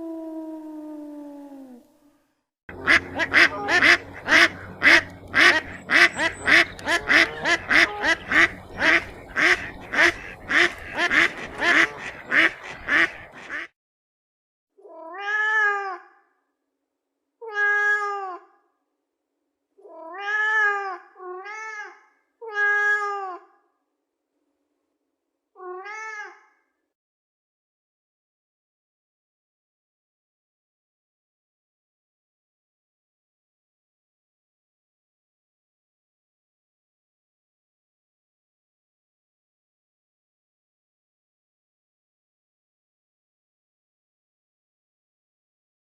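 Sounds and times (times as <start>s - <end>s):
cat meowing: 19.8s - 23.4s.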